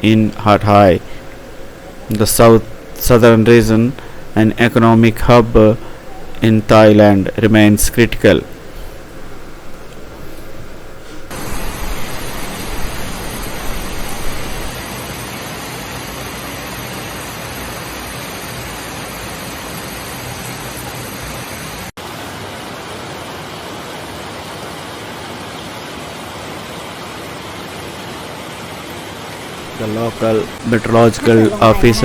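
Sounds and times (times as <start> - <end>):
rushing water: 11.3 - 14.8, 19.7 - 32.0.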